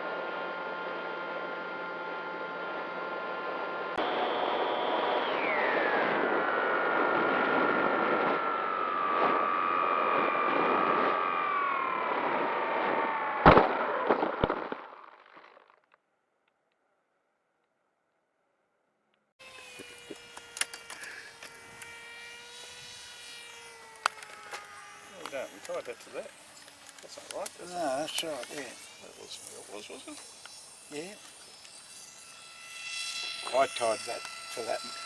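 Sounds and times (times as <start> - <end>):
model plane motor whining: 0.0 - 14.0, 19.4 - 35.0
plane crash impact: 12.2 - 14.9.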